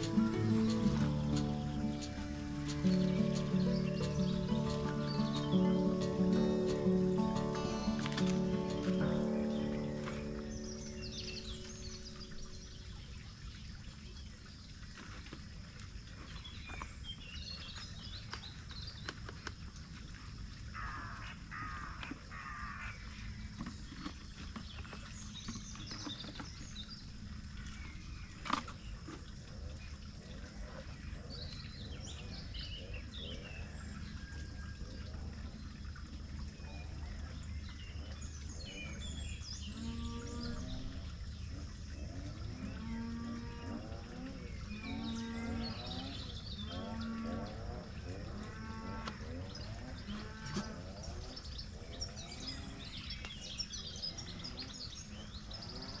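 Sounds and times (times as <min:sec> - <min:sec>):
steady low rumble: 0:00.0 - 0:13.0
birds chirping: 0:00.0 - 0:13.2, 0:35.0 - 0:56.0
cow mooing: 0:39.7 - 0:41.0, 0:42.5 - 0:50.8.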